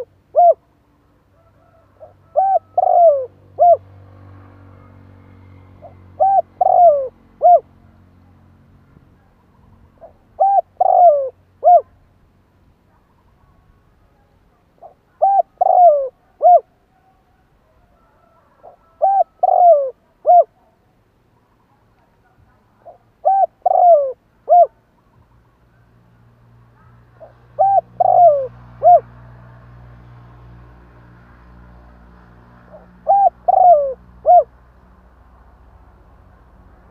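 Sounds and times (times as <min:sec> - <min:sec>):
dove cooing: 0:00.0 - 0:00.7, 0:01.4 - 0:03.9, 0:05.8 - 0:07.9, 0:09.5 - 0:12.0, 0:14.8 - 0:20.7, 0:22.8 - 0:24.8, 0:26.8 - 0:29.2, 0:32.7 - 0:34.5.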